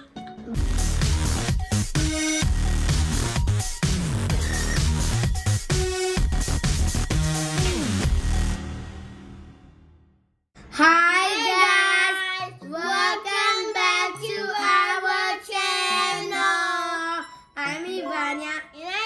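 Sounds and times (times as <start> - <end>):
child singing: 10.8 - 19.0.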